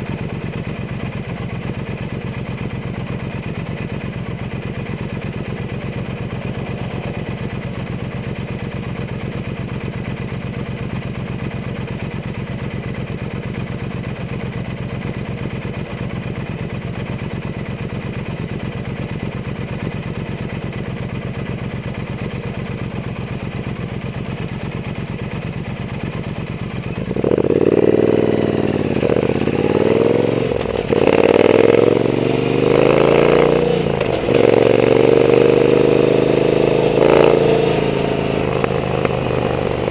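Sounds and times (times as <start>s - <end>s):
motorcycle engine idling: 0.0s - 39.9s
motorcycle pulling away: 25.9s - 39.9s.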